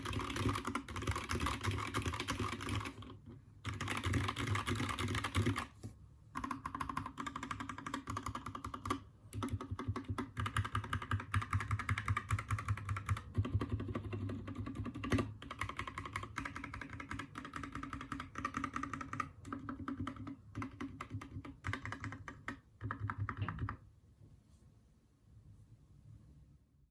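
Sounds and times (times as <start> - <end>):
mechanical keyboard typing: 0.0 - 5.7, 6.4 - 23.8.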